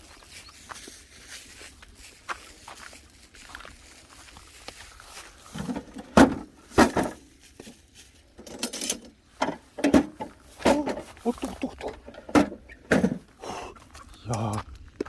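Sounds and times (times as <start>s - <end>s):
objects rattling: 5.2s - 14.2s
hard objects knocking: 11.7s - 13.3s.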